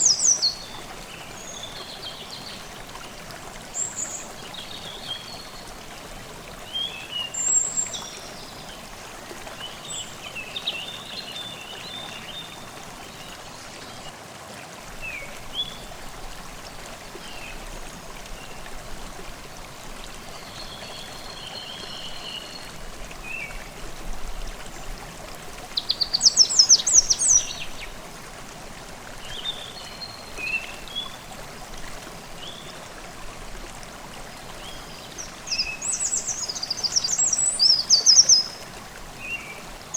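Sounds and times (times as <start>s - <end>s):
stream babbling: 0.0s - 39.9s
birds singing: 25.7s - 27.9s, 34.6s - 38.6s.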